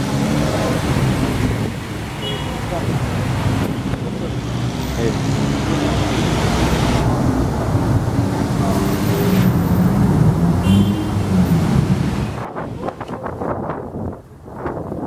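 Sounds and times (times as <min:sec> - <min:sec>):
wind buffeting microphone: 0:00.0 - 0:04.5, 0:11.2 - 0:15.0
roadside traffic: 0:00.0 - 0:15.0.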